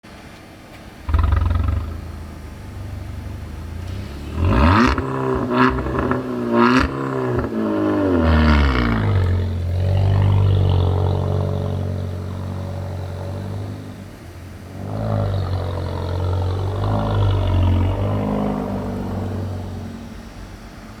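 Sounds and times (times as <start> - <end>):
car engine running unevenly: 0.1 - 21.0
clattering engine knocks: 1.1 - 20.9.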